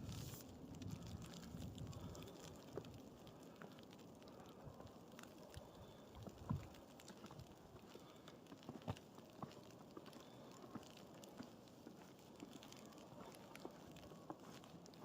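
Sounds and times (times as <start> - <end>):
footsteps crunching in snow: 0.0 - 0.5.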